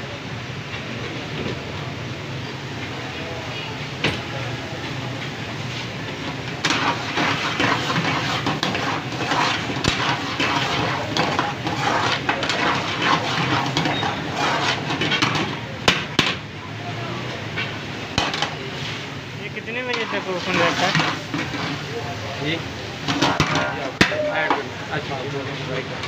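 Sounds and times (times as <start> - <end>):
metal utensils clattering on cookware: 6.5 - 15.6, 18.2 - 18.6, 19.9 - 21.8, 23.1 - 24.6.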